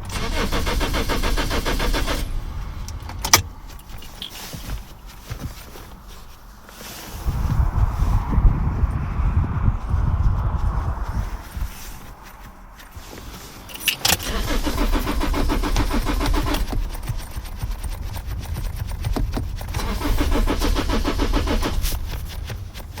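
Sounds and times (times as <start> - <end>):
starter motor cranking engine: 0.0 - 5.9, 13.7 - 23.0.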